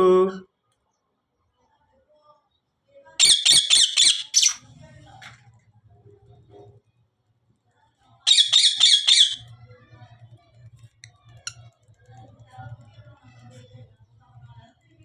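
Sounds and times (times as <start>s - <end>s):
cockatiel chirps: 8.3s - 9.4s
cockatiel squawking: 8.3s - 9.4s.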